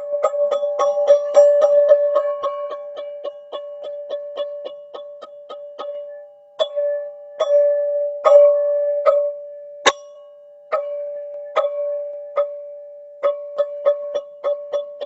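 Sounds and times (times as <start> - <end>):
bell-like tube strikes: 7.4 - 11.8.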